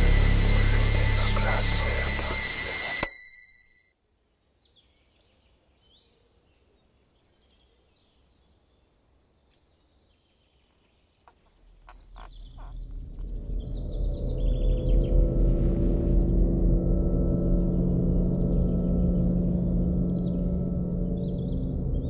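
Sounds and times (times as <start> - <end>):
low rumble: 0.0 - 3.0, 11.6 - 22.0
birds chirping and whistling: 11.3 - 16.6, 17.3 - 22.0.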